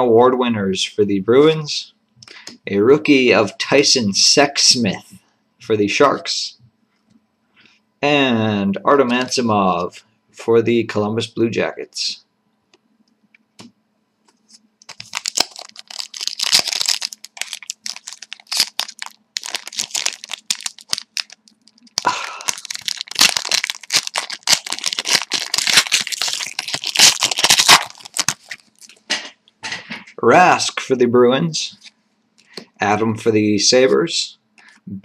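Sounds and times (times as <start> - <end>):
wrappers tearing and crinkling: 14.8 - 29.1.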